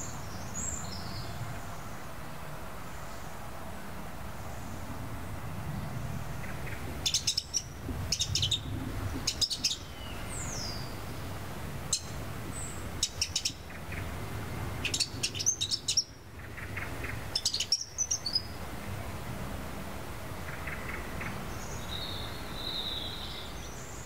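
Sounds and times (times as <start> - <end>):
low steady rumble: 0.1 - 17.4
birds chirping: 2.8 - 18.7, 20.3 - 24.0.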